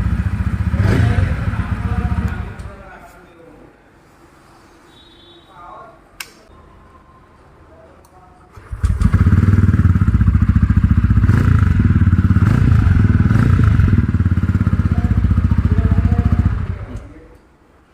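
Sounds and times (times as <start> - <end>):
motorcycle engine starting and running: 0.0 - 2.8, 8.5 - 17.1.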